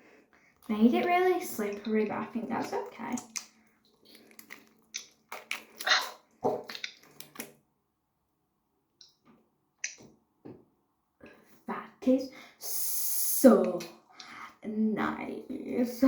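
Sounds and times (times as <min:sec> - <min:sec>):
wet squelches of squeezed foam toy: 0:01.6 - 0:07.6.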